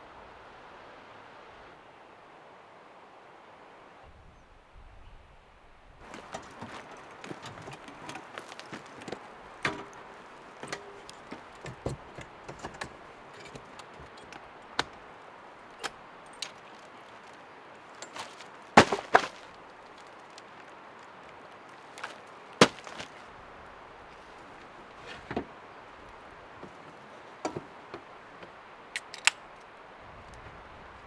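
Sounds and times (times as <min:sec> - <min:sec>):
light clicks and knocks: 0:06.0 - 0:15.1, 0:26.2 - 0:29.7.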